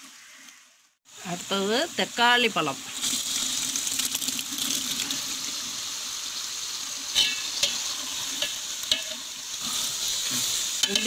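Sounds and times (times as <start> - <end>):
tomatoes sizzling in hot oil: 0.0 - 11.0
metal ladle clinking on pot: 7.2 - 7.8, 8.4 - 9.2.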